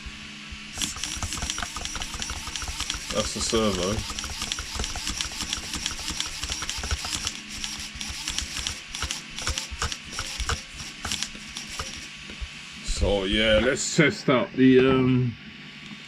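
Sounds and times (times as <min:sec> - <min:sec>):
steering servo whirring: 0:00.7 - 0:13.0.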